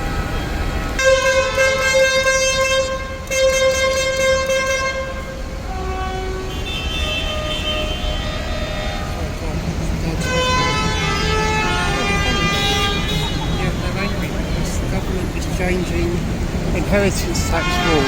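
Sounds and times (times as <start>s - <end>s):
vehicle horn blasts: 0.0s - 9.4s, 10.1s - 14.3s, 17.3s - 18.0s
faint higher horn tones: 0.0s - 15.6s, 16.4s - 18.0s
heavy engines running: 7.9s - 18.0s.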